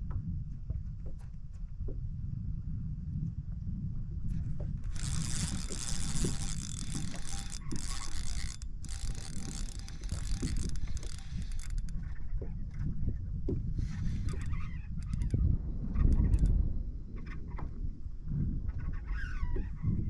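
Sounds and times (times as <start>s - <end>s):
wind and water rumble: 0.0s - 20.0s
fishing reel whirring: 4.8s - 12.2s, 13.8s - 16.5s.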